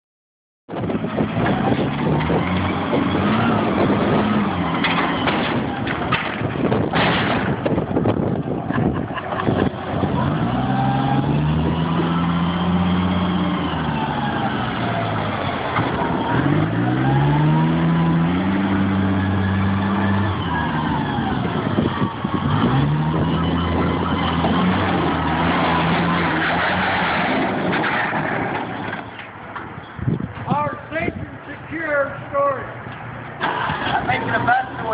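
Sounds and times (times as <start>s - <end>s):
forklift engine revving: 0.8s - 30.3s, 33.1s - 34.9s
boat hull crashing and cracking: 4.9s - 7.8s.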